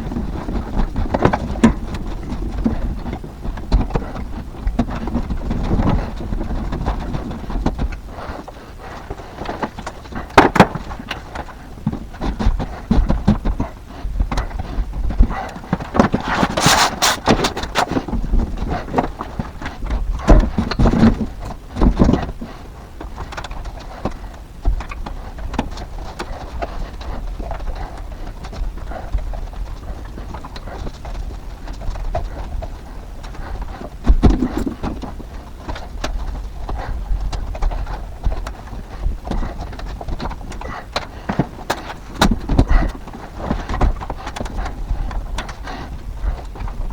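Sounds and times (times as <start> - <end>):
rustling and clatter: 0.0 - 46.9
heavy thumps: 16.0 - 17.9, 34.1 - 35.0.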